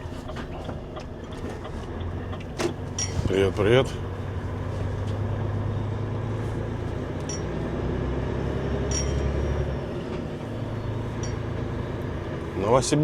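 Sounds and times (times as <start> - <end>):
diesel engine droning: 0.0 - 13.0
light clinks: 7.2 - 7.6, 8.9 - 9.6, 11.1 - 11.6.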